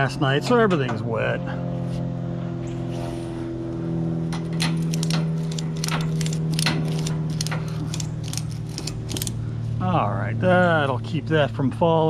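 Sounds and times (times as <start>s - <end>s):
steady low hum: 0.0s - 12.0s
ratchet strap clicking: 4.4s - 9.4s.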